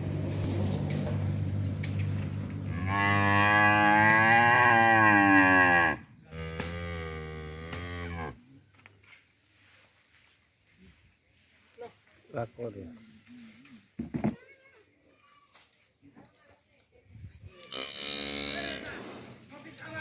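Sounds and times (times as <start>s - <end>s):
cow mooing: 2.7s - 8.4s, 17.7s - 19.0s.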